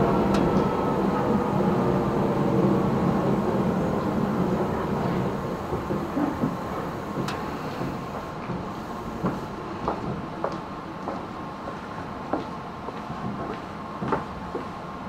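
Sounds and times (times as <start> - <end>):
train wheels on rails: 0.0 - 15.0
electric motor whine gliding down: 1.5 - 9.4.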